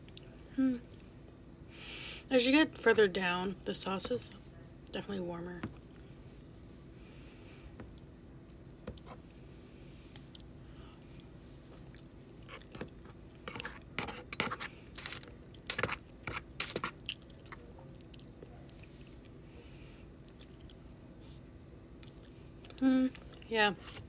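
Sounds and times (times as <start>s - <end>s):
person chewing food: 10.1s - 14.7s, 20.2s - 20.8s, 22.0s - 23.4s.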